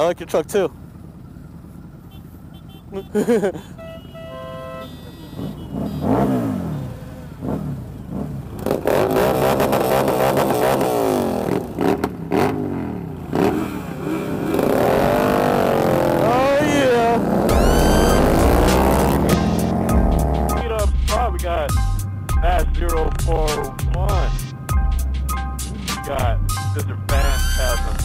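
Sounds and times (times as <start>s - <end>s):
motorcycles revving: 0.0s - 28.0s
short beep: 17.5s - 19.2s, 27.2s - 28.0s.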